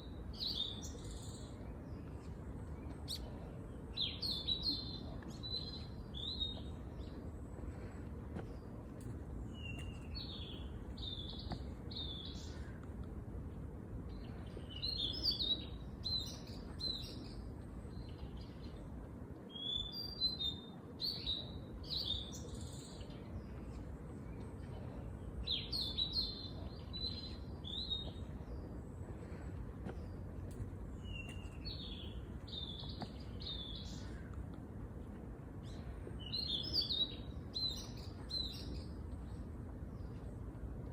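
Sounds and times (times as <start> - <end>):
low background hum: 0.0 - 40.9
songbirds chirping and twittering: 0.0 - 40.9.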